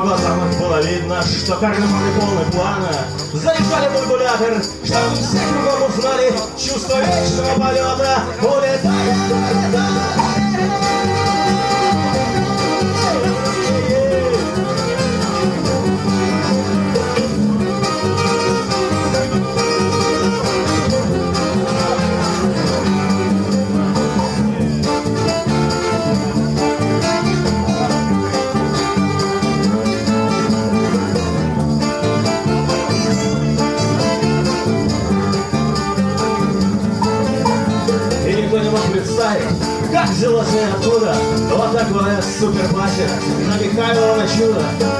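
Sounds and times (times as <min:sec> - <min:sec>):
folk rock band playing: 0:00.0 - 0:44.9
guitars: 0:00.0 - 0:44.9.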